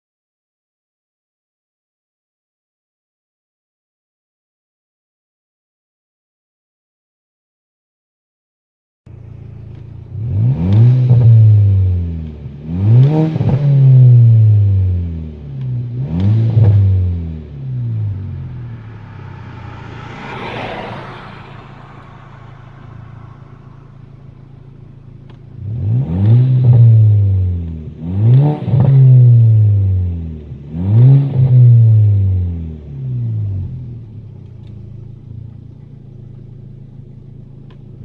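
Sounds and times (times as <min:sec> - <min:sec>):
car engine revving: 0:09.1 - 0:38.0
exhaust crackles: 0:09.1 - 0:38.0
brief whoosh: 0:17.6 - 0:25.1.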